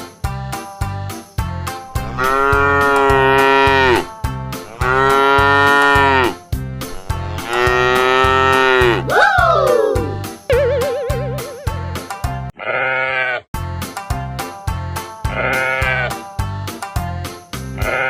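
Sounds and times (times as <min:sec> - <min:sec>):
upbeat background music: 0:00.0 - 0:12.5
toy cow mooing: 0:02.0 - 0:04.1, 0:04.7 - 0:09.1, 0:12.6 - 0:13.4
rising and falling call: 0:08.8 - 0:12.0.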